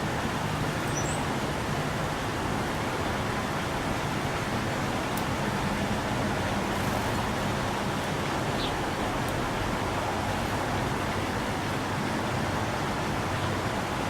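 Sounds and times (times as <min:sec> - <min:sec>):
outdoor background rush: 0:00.0 - 0:14.0
high bird chirp: 0:00.8 - 0:01.2.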